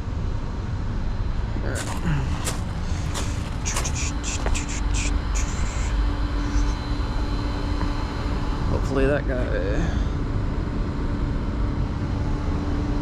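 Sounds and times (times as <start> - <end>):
constant hum: 0.0 - 13.0.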